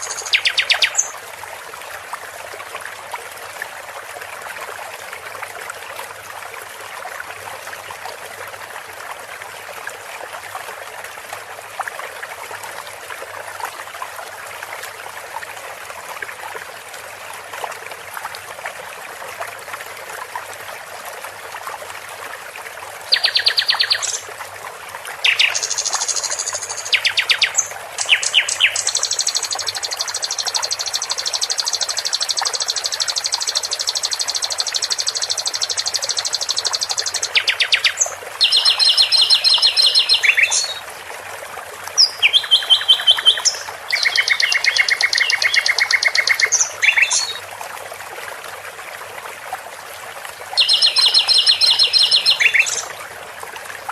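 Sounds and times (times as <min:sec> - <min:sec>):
songbird trilling: 0:00.0 - 0:01.1, 0:25.2 - 0:40.8, 0:42.0 - 0:47.4, 0:50.6 - 0:52.9
running water: 0:00.0 - 0:53.9.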